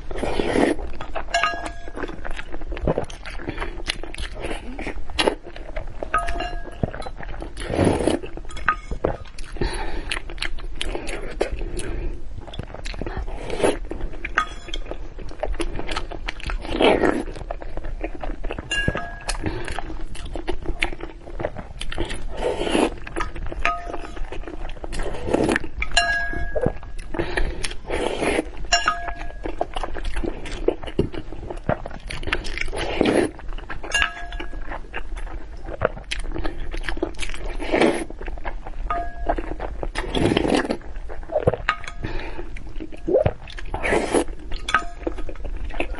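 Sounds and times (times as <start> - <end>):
utensils clinking against dishes: 1.3 - 2.0, 14.4 - 14.8.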